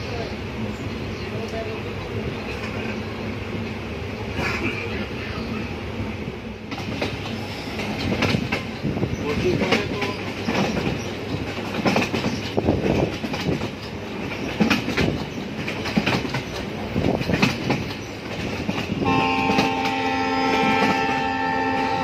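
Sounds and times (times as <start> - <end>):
train rumbling: 0.0 - 22.0
wheels clattering over rail joints: 6.7 - 21.8.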